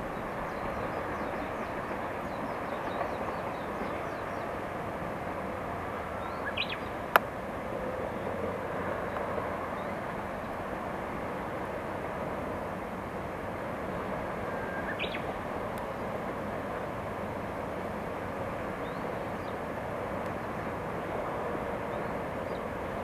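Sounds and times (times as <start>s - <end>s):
distant train rumble: 0.0s - 23.0s
small birds chirping: 6.2s - 6.9s, 14.9s - 15.3s.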